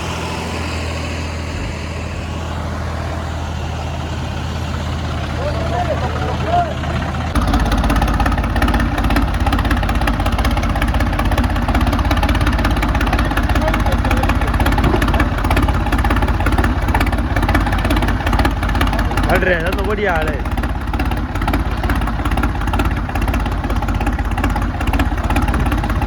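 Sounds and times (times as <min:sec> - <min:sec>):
diesel tractor engine running: 0:00.0 - 0:26.0.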